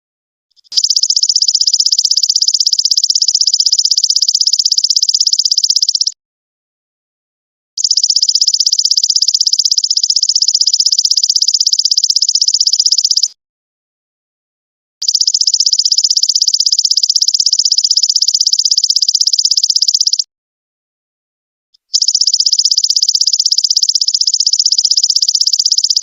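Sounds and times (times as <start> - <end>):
locust high pulsing trill: 22.0 - 26.0.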